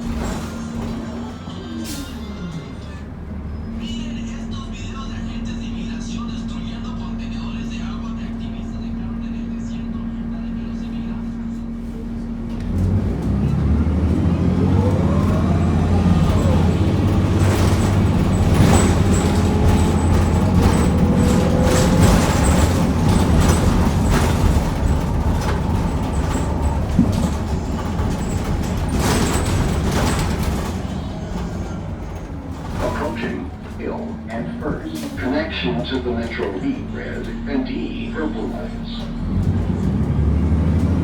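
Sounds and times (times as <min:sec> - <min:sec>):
bus body knocks and rattles: 0:00.0 - 0:01.5, 0:12.2 - 0:36.6
bus engine drone with whine: 0:00.0 - 0:41.0.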